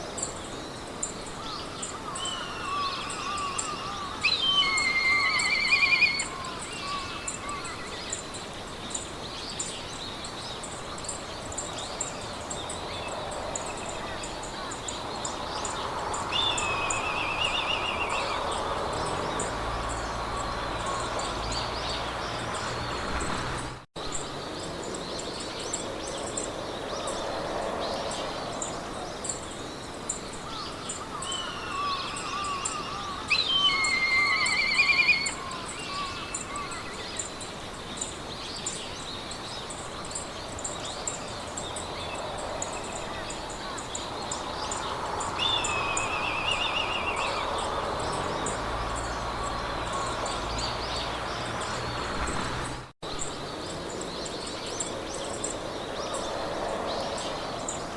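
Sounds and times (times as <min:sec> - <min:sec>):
soft wind: 0:00.0 - 0:57.9
birds singing trilled phrases: 0:01.6 - 0:08.2, 0:30.5 - 0:37.3, 0:43.2 - 0:52.1.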